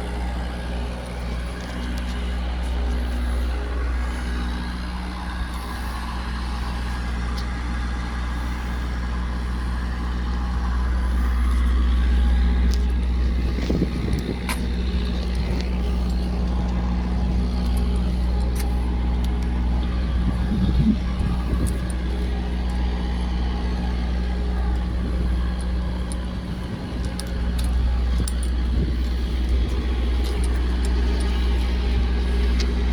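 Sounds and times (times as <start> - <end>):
diesel truck engine idling: 0.0 - 32.9.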